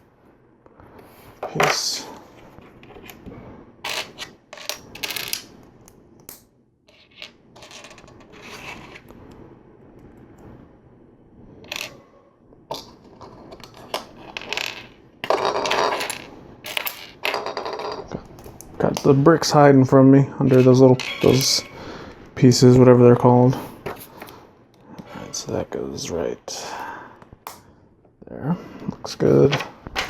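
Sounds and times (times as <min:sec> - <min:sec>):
plastic bricks clicking and clattering: 0:12.7 - 0:18.2.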